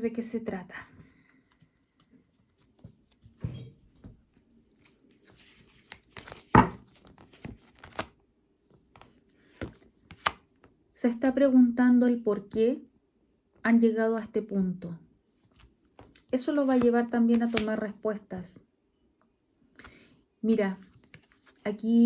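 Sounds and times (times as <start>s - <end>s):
cards rustling and snapping: 4.8s - 8.2s, 9.0s - 10.6s, 15.6s - 17.8s, 20.9s - 21.6s.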